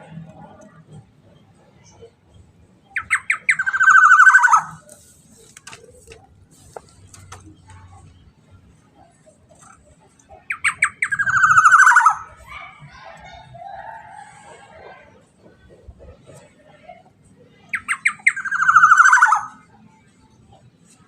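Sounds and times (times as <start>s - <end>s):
bird calling: 2.9s - 5.0s, 10.3s - 12.5s, 17.7s - 19.6s.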